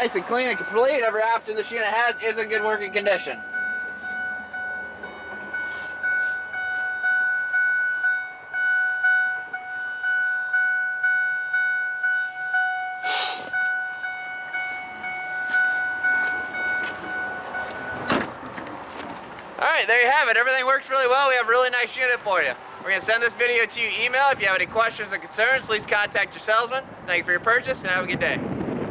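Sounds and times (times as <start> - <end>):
truck warning chime dinging: 0.0 - 18.9, 19.6 - 26.9.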